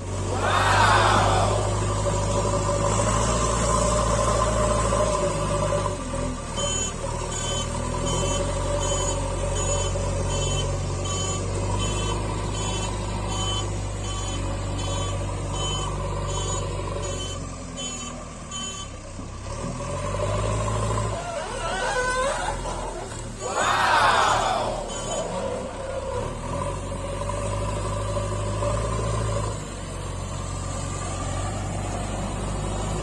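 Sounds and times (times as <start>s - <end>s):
low engine rumble: 0.0s - 6.1s
reversing alarm beeps: 6.6s - 19.0s, 24.8s - 25.5s.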